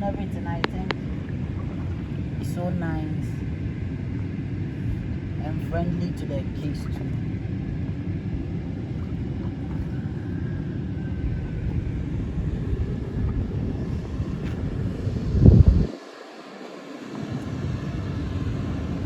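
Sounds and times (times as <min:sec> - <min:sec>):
wind buffeting microphone: 0:06.7 - 0:19.0.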